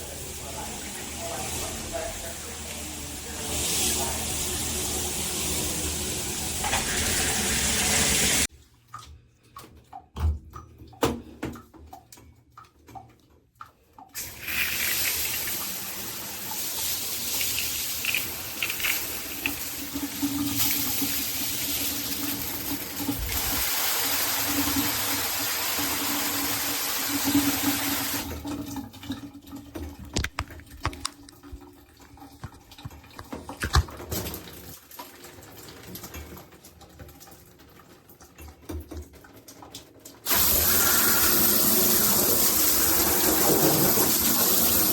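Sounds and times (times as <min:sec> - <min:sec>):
shower head spraying water: 0:00.2 - 0:08.5, 0:14.2 - 0:28.2, 0:40.3 - 0:44.9
small clicks and knocks: 0:30.0 - 0:31.6.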